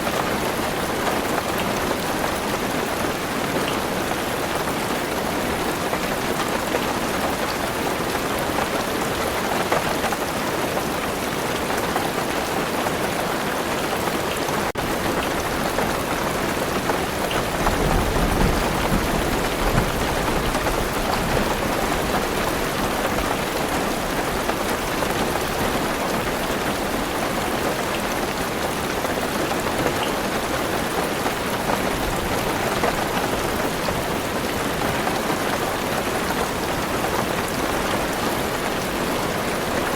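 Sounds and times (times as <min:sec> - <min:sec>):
heavy rain on a car roof: 0:00.0 - 0:39.9
thunder rumble: 0:17.4 - 0:22.4.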